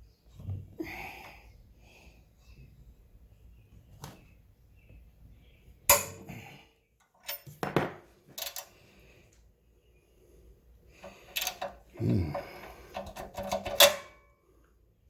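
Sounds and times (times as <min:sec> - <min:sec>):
metal tools clanking: 0:05.9 - 0:06.4, 0:07.2 - 0:08.7, 0:11.0 - 0:14.2
metallic clank ringing: 0:05.9 - 0:06.4
clatter of small knocks: 0:07.2 - 0:08.5.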